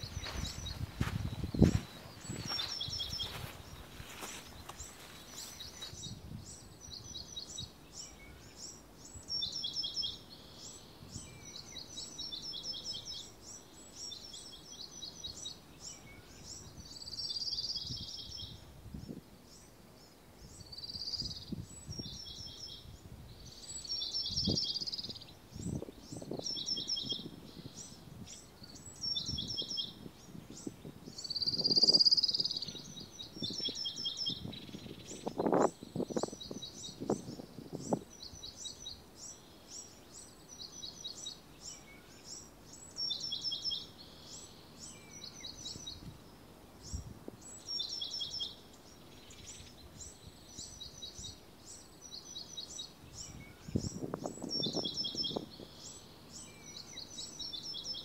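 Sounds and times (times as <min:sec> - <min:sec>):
soft low thumps: 0:00.0 - 0:06.2
birds chirping: 0:00.0 - 0:58.0.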